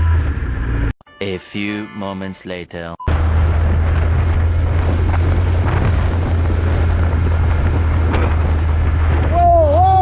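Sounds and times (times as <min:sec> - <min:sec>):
motorcycle engine drone: 0:00.0 - 0:00.9, 0:03.1 - 0:10.0
wind buffeting microphone: 0:03.1 - 0:10.0.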